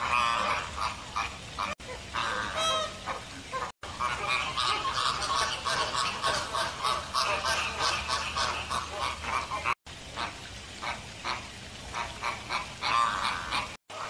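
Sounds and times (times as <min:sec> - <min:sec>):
flamingos honking: 0:00.0 - 0:14.0.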